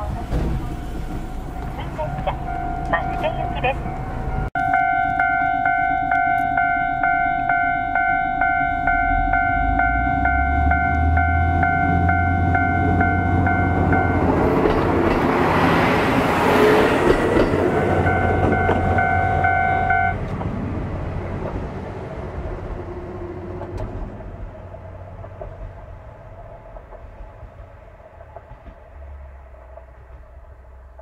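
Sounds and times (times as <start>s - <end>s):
diesel railcar passing: 0.0s - 31.0s
level crossing alarm ringing: 0.6s - 14.4s, 17.6s - 20.2s.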